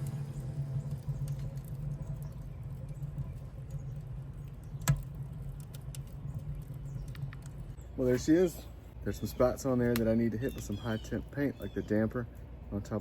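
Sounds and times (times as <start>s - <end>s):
fire snap: 0.0s - 7.8s, 9.7s - 10.8s
low hum: 0.0s - 8.0s
fire crackling faintly: 0.0s - 13.0s.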